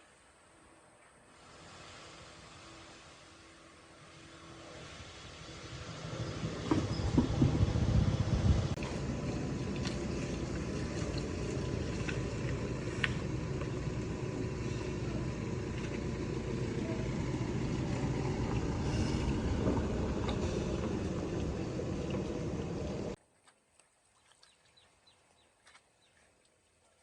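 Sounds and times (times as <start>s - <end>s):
vehicle rumble: 1.3s - 23.2s.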